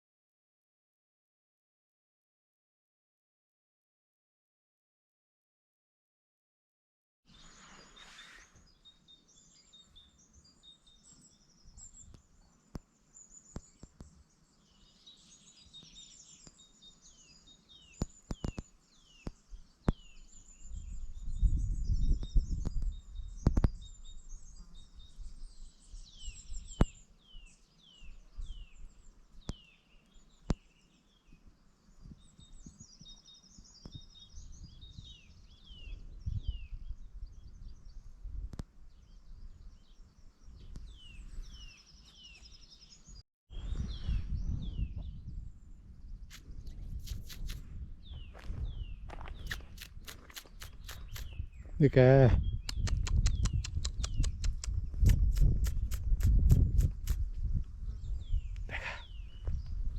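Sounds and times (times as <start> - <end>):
songbirds chirping: 7.3 - 59.9
sharp clicks: 46.3 - 47.6, 49.4 - 51.4, 52.6 - 57.2.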